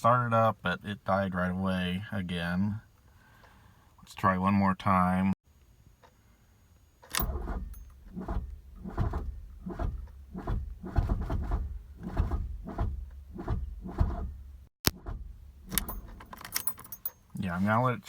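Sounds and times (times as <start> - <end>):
starter cranking diesel engine: 7.1 - 16.7.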